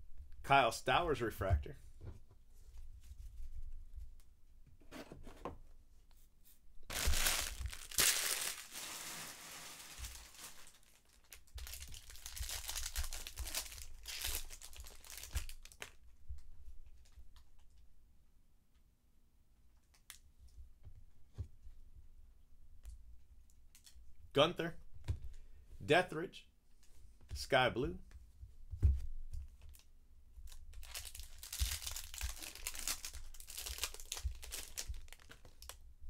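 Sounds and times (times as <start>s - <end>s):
cards being handled: 6.9s - 10.8s
foil wrapper tearing and crinkling: 6.9s - 16.0s, 30.5s - 35.8s.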